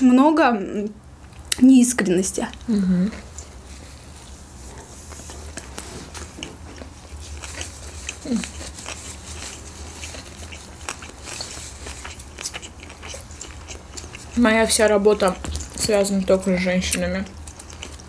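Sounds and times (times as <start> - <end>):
steady low hum: 0.0 - 18.0
people chewing sushi: 2.4 - 18.0
person humming: 2.6 - 3.3, 8.2 - 8.5
wet mouth clicks and crunches: 5.1 - 16.2, 16.8 - 18.0.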